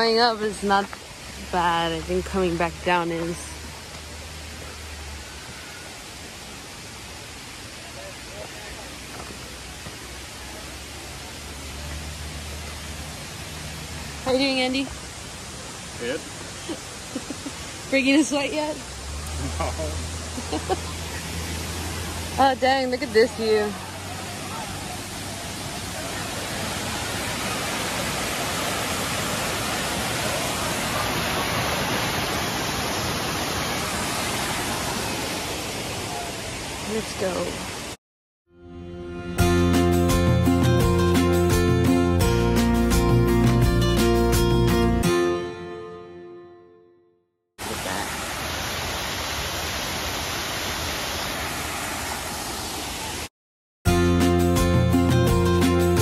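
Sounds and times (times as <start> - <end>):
waterfall rushing: 0.0 - 38.0, 47.6 - 53.3
guitar music: 38.5 - 47.1, 53.9 - 56.0.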